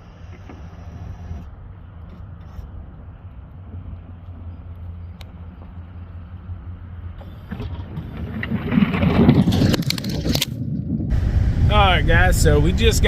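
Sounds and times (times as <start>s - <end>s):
vehicle running with low hum: 0.0s - 13.0s
rushing noise: 11.1s - 13.0s.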